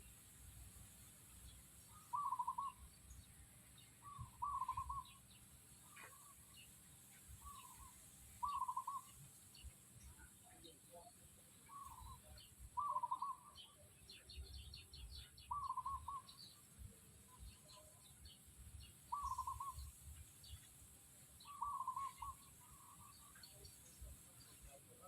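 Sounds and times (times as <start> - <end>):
faint high bird chirps: 1.4 - 20.7, 21.4 - 25.0
bird warbling call: 1.9 - 2.9, 4.0 - 5.2, 7.4 - 9.2, 11.7 - 13.8, 15.5 - 16.4, 19.1 - 19.9, 21.4 - 23.6.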